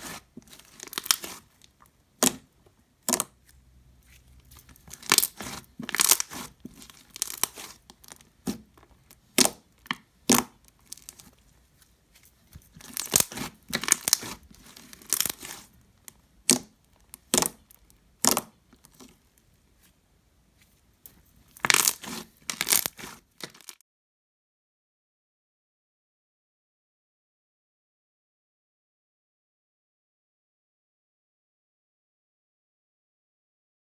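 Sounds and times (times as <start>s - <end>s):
slime squished by hand: 0.0s - 19.2s, 21.1s - 23.8s.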